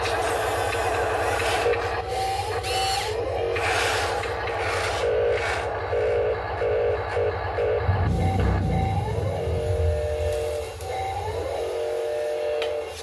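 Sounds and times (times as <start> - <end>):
heavy machinery engine drone: 0.0 - 13.0
metal rubbing and squealing: 7.8 - 13.0.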